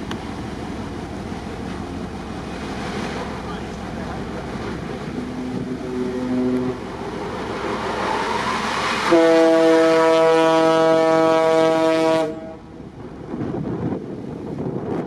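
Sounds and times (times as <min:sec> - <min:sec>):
rushing wind: 0:00.0 - 0:15.0
sea noise: 0:00.0 - 0:15.0
ship's horn blast: 0:05.1 - 0:07.0, 0:09.1 - 0:12.7.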